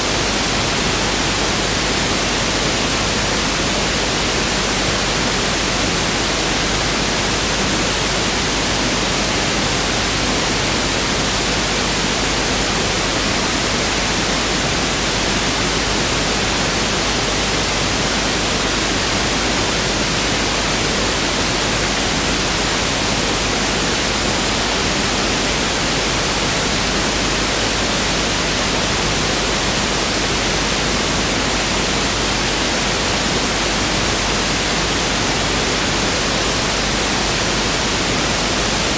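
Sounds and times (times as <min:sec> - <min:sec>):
steady pink noise hiss: 0:00.0 - 0:38.9.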